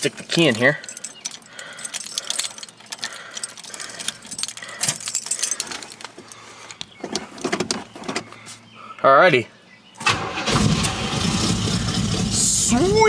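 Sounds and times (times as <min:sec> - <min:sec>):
key going into ignition: 0:00.0 - 0:06.2
keys jangling: 0:00.0 - 0:06.8.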